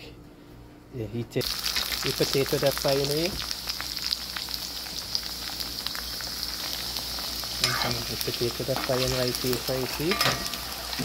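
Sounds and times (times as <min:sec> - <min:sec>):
potatoes sizzling in oil: 0:01.4 - 0:11.0
person speaking: 0:07.6 - 0:10.4.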